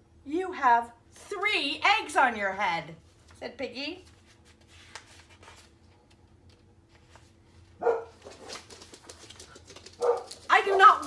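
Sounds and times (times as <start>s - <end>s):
dog barking: 7.8s - 8.5s, 10.0s - 11.0s.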